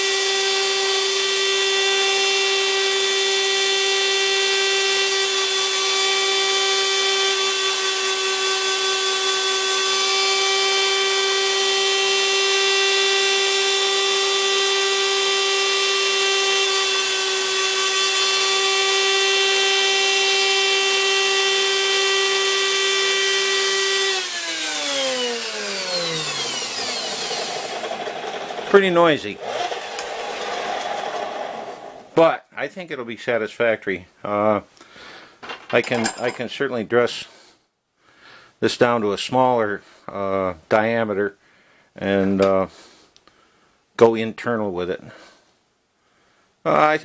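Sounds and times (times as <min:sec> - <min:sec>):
grinder high whine: 0:00.0 - 0:32.2
grinder spinning down: 0:20.4 - 0:32.2.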